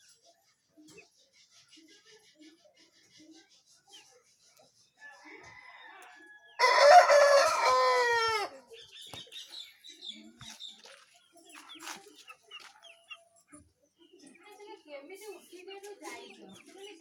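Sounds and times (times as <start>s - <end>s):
faint chicken clucks: 0.0s - 10.8s
rooster crowing: 5.2s - 8.6s.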